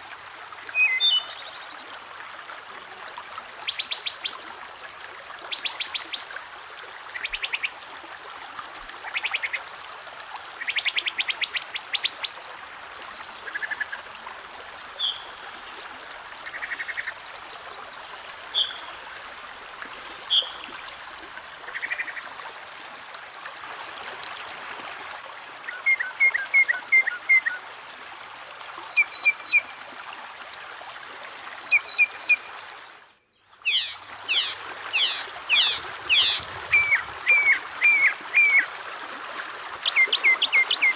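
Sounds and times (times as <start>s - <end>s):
water trickling: 0.0s - 40.9s
songbirds calling: 0.7s - 1.9s, 15.0s - 15.4s, 18.5s - 19.0s, 33.2s - 38.7s.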